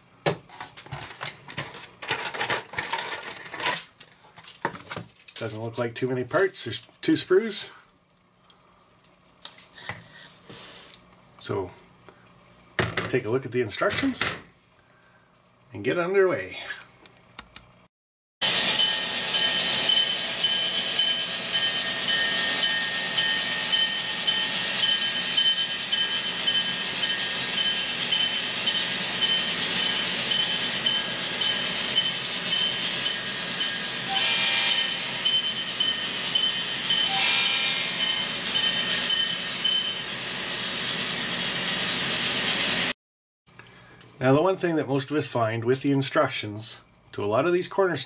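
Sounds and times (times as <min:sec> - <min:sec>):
train rumbling on track: 0:18.4 - 0:42.9.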